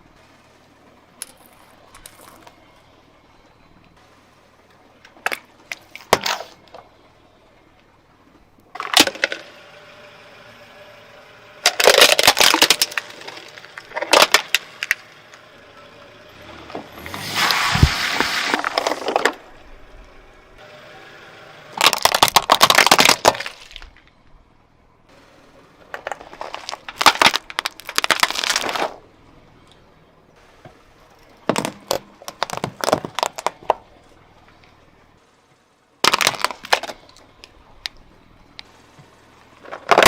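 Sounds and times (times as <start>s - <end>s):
objects crunching under car tyre: 1.2s - 2.8s, 5.1s - 7.0s, 11.6s - 20.3s, 21.7s - 24.3s, 25.8s - 29.1s, 31.2s - 34.8s, 36.0s - 40.0s.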